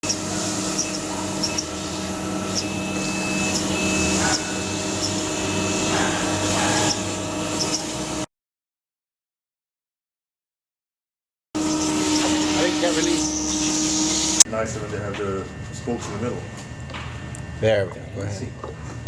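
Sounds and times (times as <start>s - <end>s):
machine tool spindle whining: 0.0s - 8.3s, 11.6s - 14.5s.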